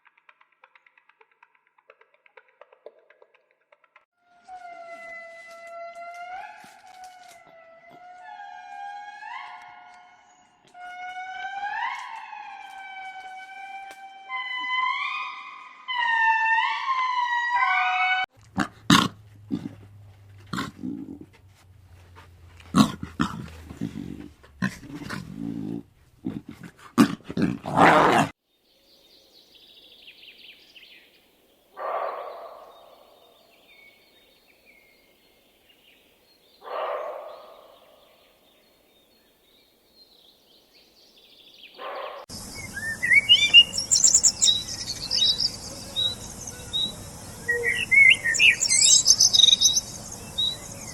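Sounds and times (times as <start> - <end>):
birds chirping: 41.7 - 50.9
drawn-out animal calls: 42.3 - 50.9.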